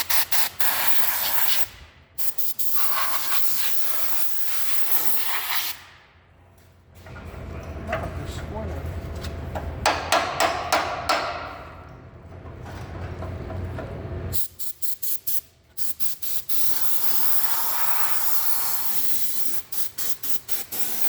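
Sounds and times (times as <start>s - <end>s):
compressed air blow gun hissing: 15.8s - 21.0s.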